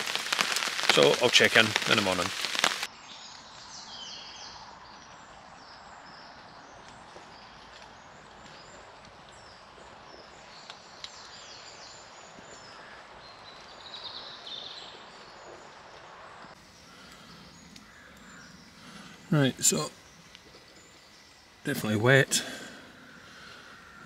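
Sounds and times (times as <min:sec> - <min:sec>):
steady hiss: 0:00.0 - 0:02.9, 0:16.1 - 0:24.0
birds chirping: 0:00.0 - 0:24.0.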